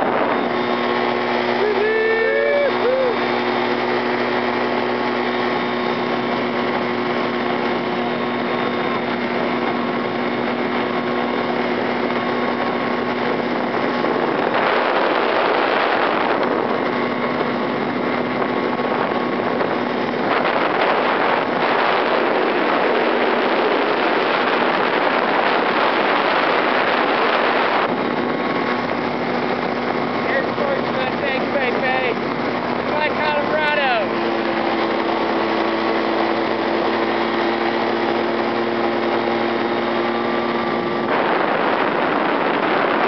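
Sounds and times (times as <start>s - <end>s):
rushing noise: 0.0s - 16.3s
engine and propeller running: 0.0s - 43.0s.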